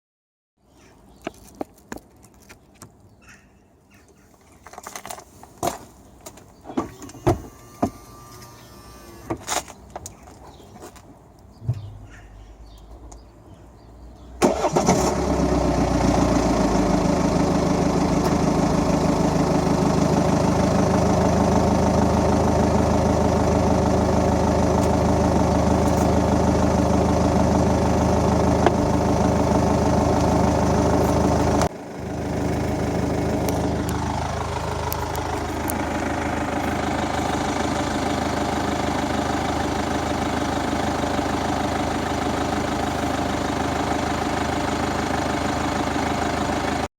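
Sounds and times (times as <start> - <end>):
car engine starting and idling: 6.7 - 9.4, 14.4 - 46.9.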